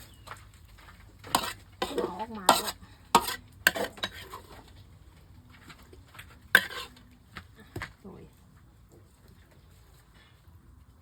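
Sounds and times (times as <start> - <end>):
utensils clinking against pots: 1.3 - 4.6, 6.6 - 7.0.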